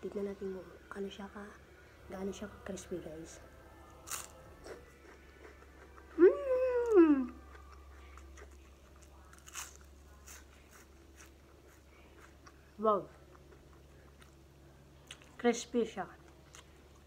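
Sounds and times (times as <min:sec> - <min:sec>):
crunchy chewing: 0:04.0 - 0:06.2, 0:06.8 - 0:14.4.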